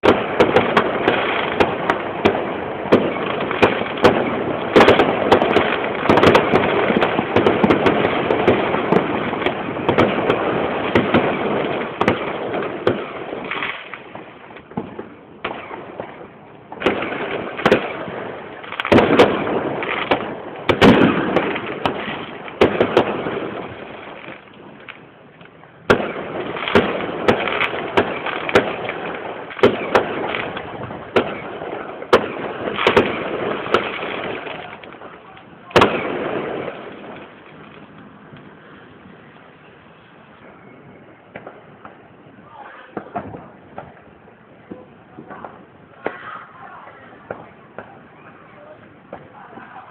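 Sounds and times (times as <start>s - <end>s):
fireworks crackling and banging: 0.0s - 49.9s.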